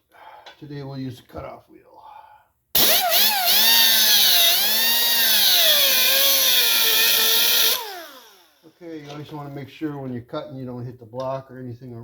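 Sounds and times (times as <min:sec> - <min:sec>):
cutoff wheel grinding metal: 0:02.8 - 0:08.6.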